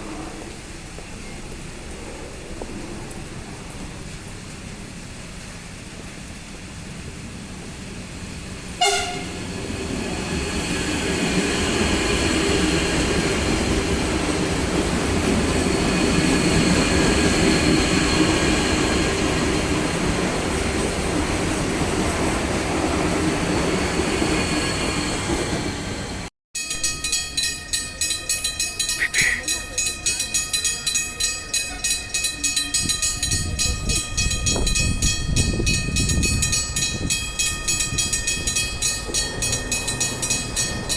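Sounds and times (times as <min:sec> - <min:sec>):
wheels rumbling on rails: 0:00.0 - 0:40.9
train horn blast: 0:08.8 - 0:09.5.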